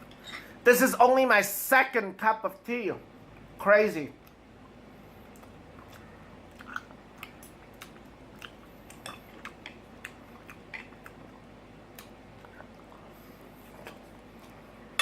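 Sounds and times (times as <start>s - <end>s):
person chewing food: 4.2s - 14.9s.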